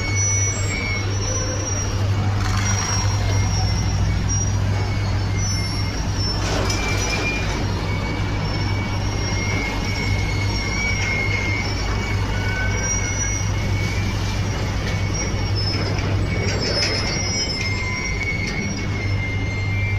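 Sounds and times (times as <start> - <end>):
high-pitched squeals: 0.0 - 19.9
truck engine hum: 0.0 - 19.9.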